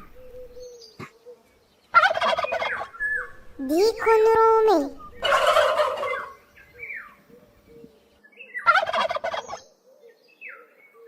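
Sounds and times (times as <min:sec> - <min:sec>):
turkey gobbling: 0:01.9 - 0:03.4, 0:05.0 - 0:07.0, 0:08.6 - 0:09.6.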